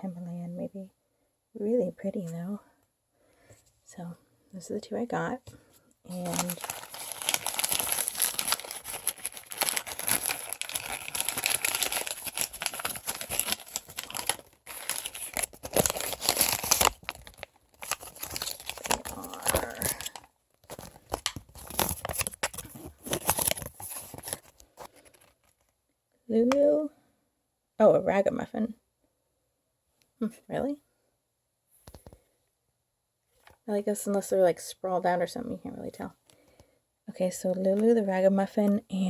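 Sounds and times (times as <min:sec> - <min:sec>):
packaging tearing and crinkling: 0:06.1 - 0:25.6.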